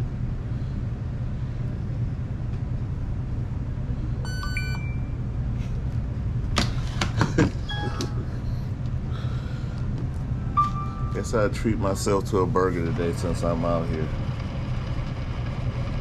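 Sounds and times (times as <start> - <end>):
steady low hum: 0.0 - 16.0
electronic beeps: 4.2 - 5.2, 7.6 - 8.3, 10.6 - 11.3.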